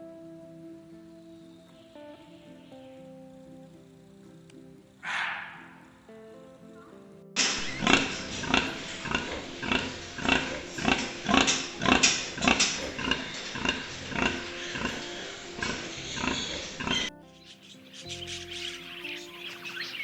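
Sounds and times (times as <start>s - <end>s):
animal grunting calls: 5.0s - 5.8s, 7.4s - 17.1s.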